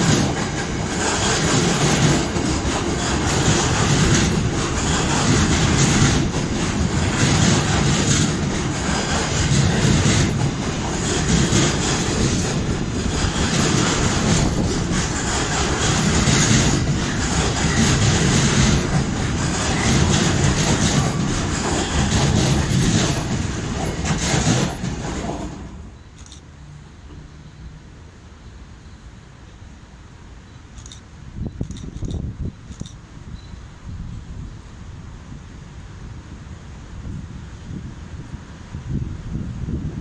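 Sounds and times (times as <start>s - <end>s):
train wheels rumbling and clattering: 0.0s - 26.4s, 30.6s - 33.5s.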